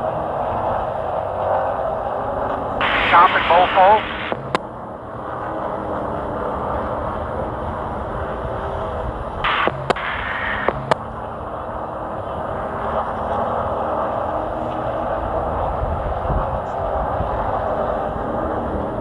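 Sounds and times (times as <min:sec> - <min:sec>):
race truck engine droning: 0:00.0 - 0:19.0
sharp clicks: 0:09.5 - 0:11.0.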